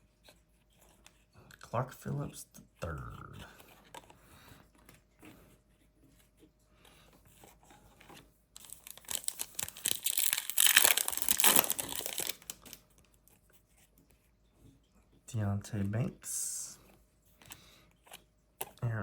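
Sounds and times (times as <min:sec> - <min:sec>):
plastic foil wrapper tearing: 0:08.6 - 0:12.8.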